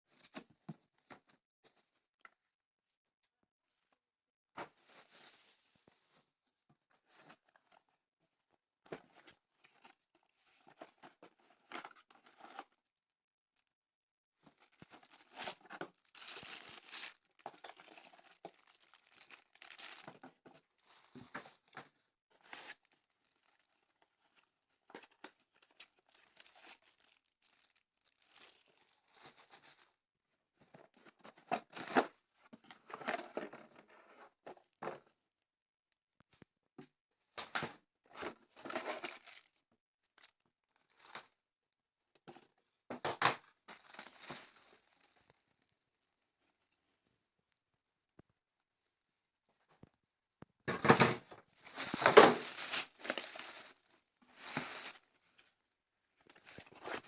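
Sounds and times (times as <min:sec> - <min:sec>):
rustling and crinkling: 0:04.6 - 0:07.9, 0:14.4 - 0:30.0, 0:38.1 - 0:41.4, 0:43.5 - 0:45.7, 0:51.0 - 0:55.6, 0:56.2 - 0:57.0.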